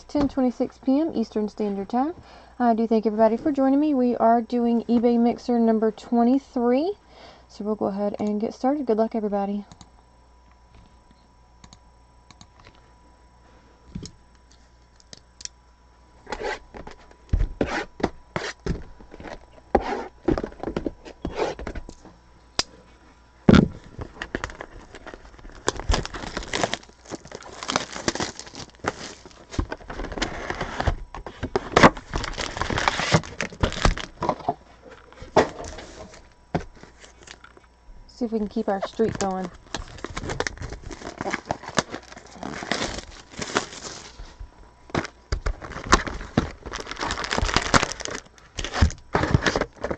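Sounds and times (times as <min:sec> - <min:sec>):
plastic wrapping tearing and crinkling: 0:24.0 - 0:31.0, 0:31.6 - 0:34.5, 0:36.8 - 0:37.5, 0:38.9 - 0:49.9.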